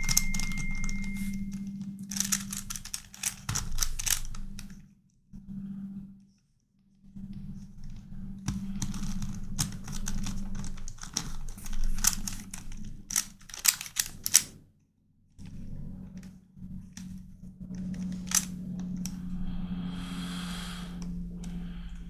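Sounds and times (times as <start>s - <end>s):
plastic puzzle clicking and snapping: 0.0s - 1.4s, 2.0s - 4.8s, 8.5s - 14.5s, 17.7s - 19.2s.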